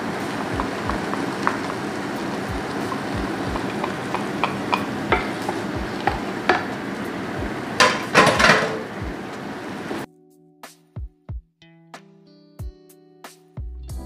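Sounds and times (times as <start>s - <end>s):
meat sizzling in a frying pan: 0.0s - 10.0s
utensil scraping a pan: 2.8s - 9.0s.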